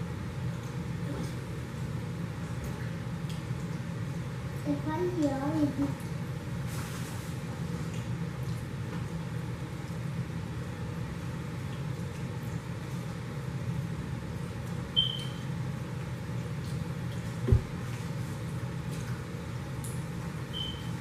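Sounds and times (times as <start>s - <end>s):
low background hum: 0.0s - 21.0s
dull thump: 17.4s - 17.8s.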